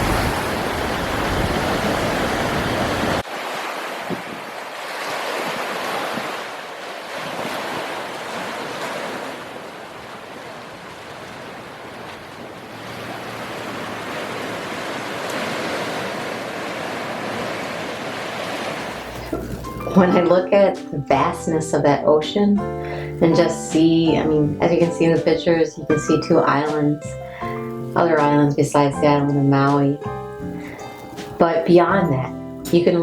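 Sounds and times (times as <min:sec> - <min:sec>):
ocean surf breaking: 0:00.0 - 0:22.5.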